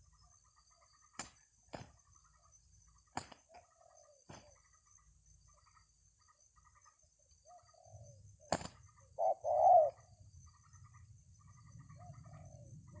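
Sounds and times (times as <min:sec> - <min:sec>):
dove cooing: 0:07.4 - 0:10.2, 0:11.8 - 0:13.0.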